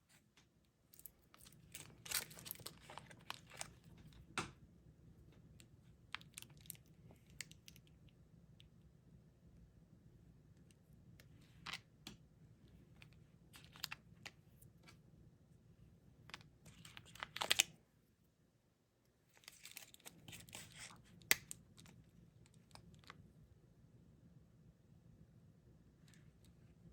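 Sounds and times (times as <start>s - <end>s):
plastic candy packaging crinkling: 1.0s - 4.1s, 6.2s - 7.9s, 13.6s - 14.0s, 16.3s - 17.7s, 19.3s - 21.9s.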